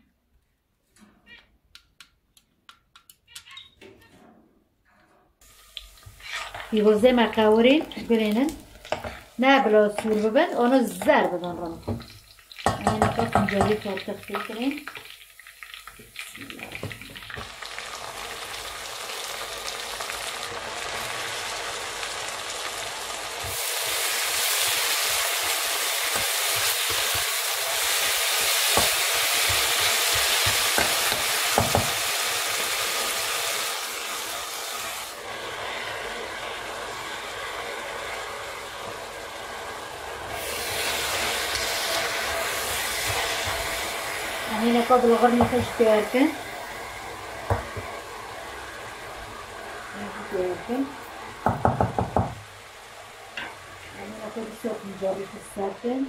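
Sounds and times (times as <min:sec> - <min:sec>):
greens hissing in pot: 0:05.4 - 0:11.0, 0:20.9 - 0:51.6
onion sizzling in hot oil: 0:05.4 - 0:56.0
metal spoon stirring: 0:05.8 - 0:07.0.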